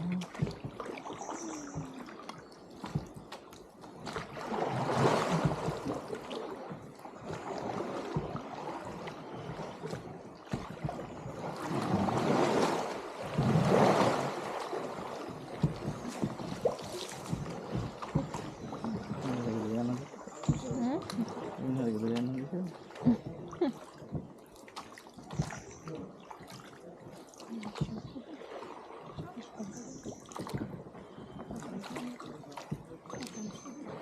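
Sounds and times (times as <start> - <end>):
water splashing around boat: 0.0 - 34.0.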